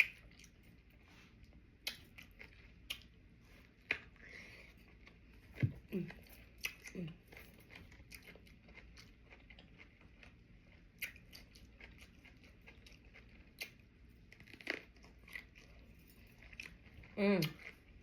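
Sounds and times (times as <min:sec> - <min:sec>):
faint close-up chewing: 0:00.0 - 0:18.0.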